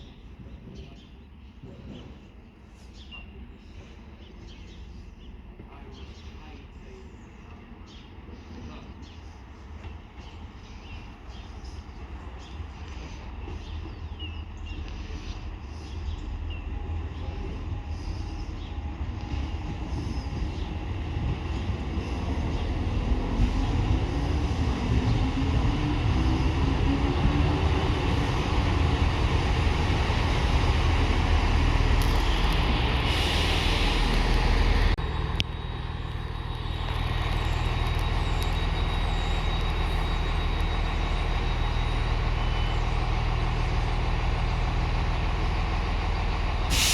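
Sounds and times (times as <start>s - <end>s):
train running past: 7.6s - 46.9s
hiss: 33.0s - 34.8s, 46.7s - 46.9s.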